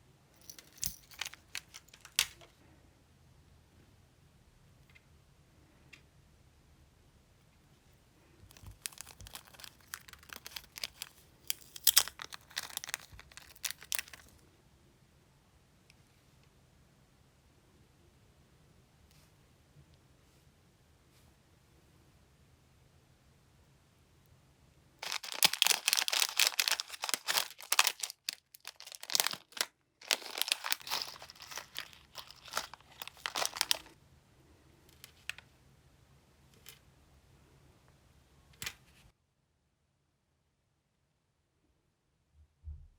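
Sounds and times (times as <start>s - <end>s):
crinkling and crackling: 0.4s - 2.6s, 8.5s - 14.4s, 25.0s - 34.0s.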